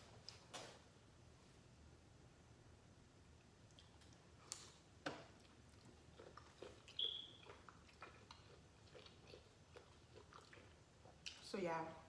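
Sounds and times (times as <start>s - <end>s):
chewing and lip smacking: 3.6s - 11.5s.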